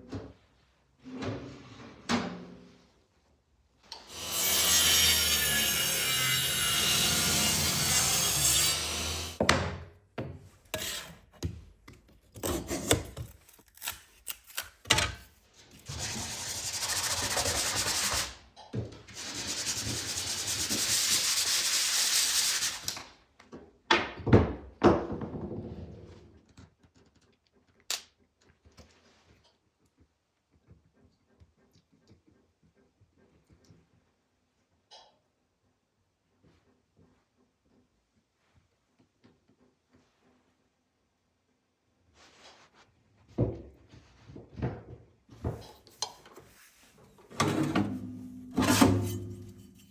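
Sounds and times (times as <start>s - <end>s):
power tool cutting wood: 4.0s - 9.4s.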